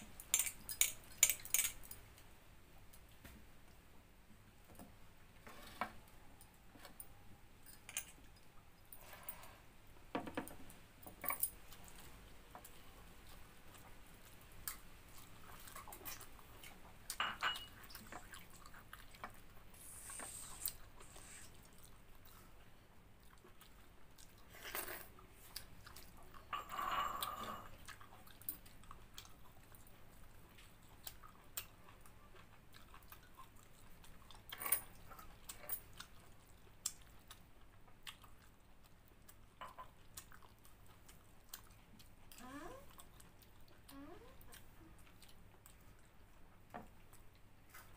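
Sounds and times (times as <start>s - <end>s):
person chewing food: 11.6s - 26.5s, 27.7s - 47.9s.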